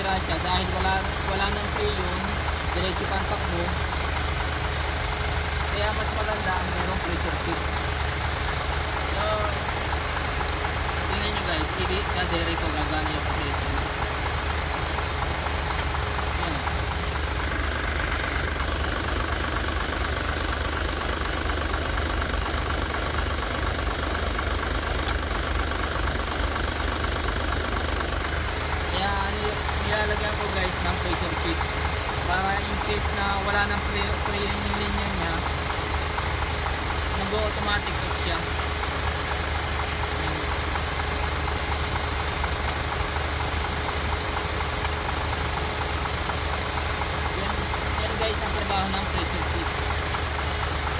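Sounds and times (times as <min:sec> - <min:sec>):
light regular ticking: 0:00.0 - 0:50.9
truck engine idling: 0:00.0 - 0:50.9
sharp clicks: 0:15.6 - 0:16.8, 0:24.9 - 0:25.5, 0:42.5 - 0:43.0, 0:44.7 - 0:45.3.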